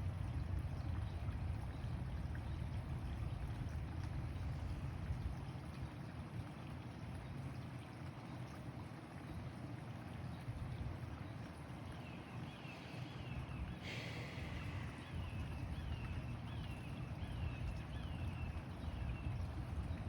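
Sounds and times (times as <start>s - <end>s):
low outdoor background rush: 0.0s - 20.0s.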